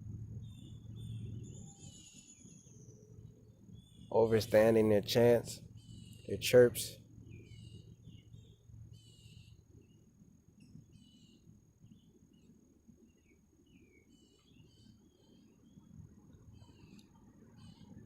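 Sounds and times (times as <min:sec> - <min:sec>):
low steady rumble: 0:00.0 - 0:18.0
birds chirping and trilling: 0:00.3 - 0:18.0.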